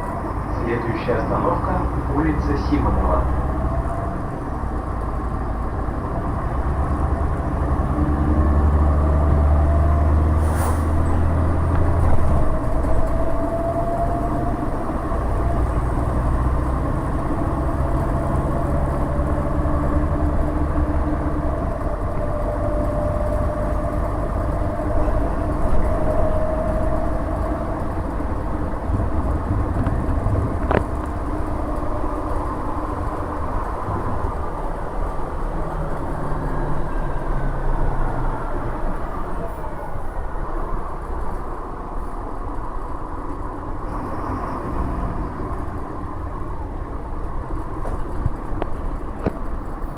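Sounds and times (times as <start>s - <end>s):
bus engine rumbling: 0.0s - 49.9s
road noise: 0.0s - 49.9s.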